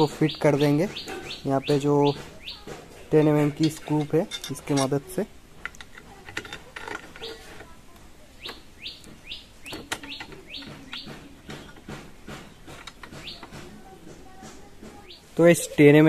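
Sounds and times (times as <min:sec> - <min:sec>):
bird chirping: 0:00.0 - 0:04.9, 0:06.7 - 0:07.7, 0:08.3 - 0:14.0, 0:15.0 - 0:15.9.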